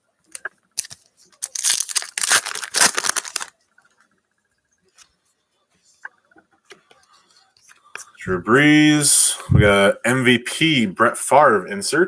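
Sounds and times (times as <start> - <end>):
wrapper ripping and crinkling: 0.3 - 3.6.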